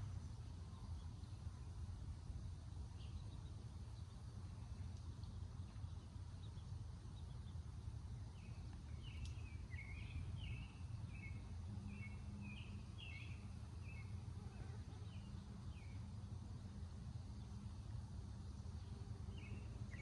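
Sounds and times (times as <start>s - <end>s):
low background rumble: 0.0s - 20.0s
small bird chirping: 2.7s - 16.2s.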